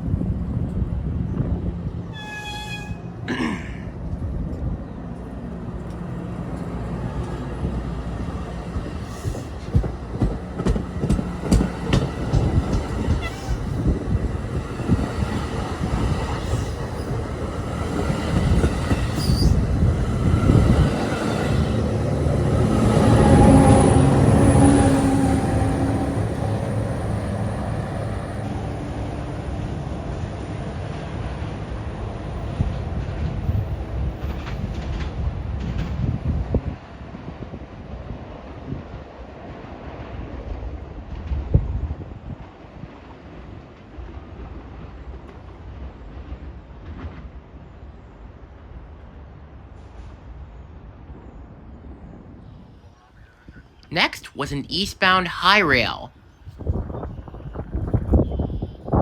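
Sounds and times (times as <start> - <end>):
pitched hum from train: 0.0 - 59.0
train wheels clicking over rail joints: 5.8 - 21.2.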